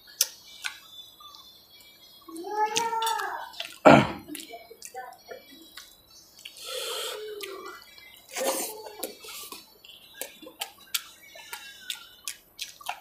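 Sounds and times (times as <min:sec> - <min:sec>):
close-up chewing: 0:00.1 - 0:13.0
mouth smacks and clicks: 0:02.8 - 0:05.0, 0:07.4 - 0:07.7, 0:10.2 - 0:13.0.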